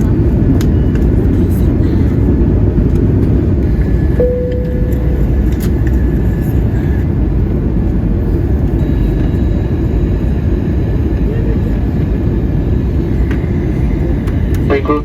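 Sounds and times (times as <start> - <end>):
cabin engine and airflow rumble: 0.0 - 15.0
single chime tone: 4.2 - 5.5.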